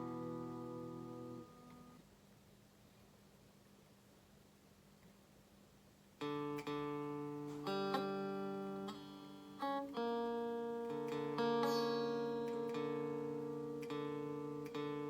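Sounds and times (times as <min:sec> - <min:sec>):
electric guitar strummed chords: 0:00.0 - 0:02.0, 0:06.2 - 0:15.0.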